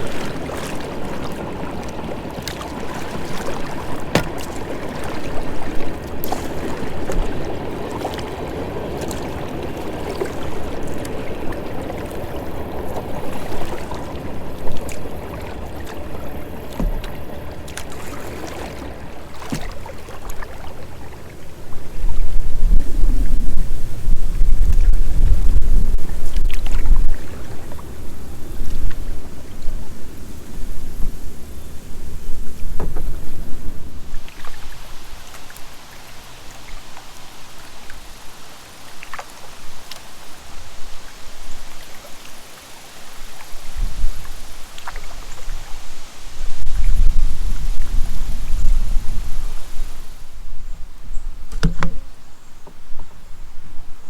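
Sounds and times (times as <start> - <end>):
wind buffeting microphone: 0.0 - 35.1, 43.5 - 52.2
creek water splashing: 0.0 - 54.0
light knocks on kayak: 3.4 - 4.7, 16.6 - 18.1, 19.3 - 19.8, 32.7 - 33.2, 51.5 - 52.8
low rumble: 22.1 - 27.2.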